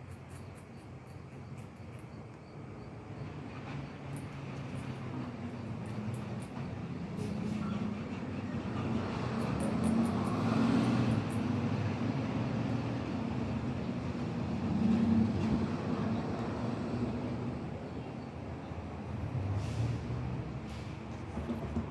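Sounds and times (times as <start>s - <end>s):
vehicle passing with low rumble: 8.6s - 21.9s.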